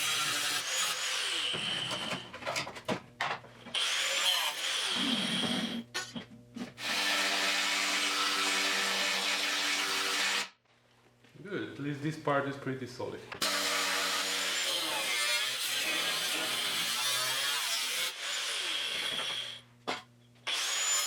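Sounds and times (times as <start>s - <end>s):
angle grinder on steel: 0.0s - 2.2s, 13.4s - 19.6s, 20.5s - 21.0s.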